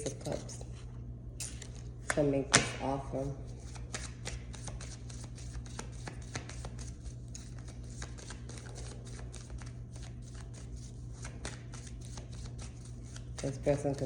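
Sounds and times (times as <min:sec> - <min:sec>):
cards being shuffled: 0:03.6 - 0:10.6.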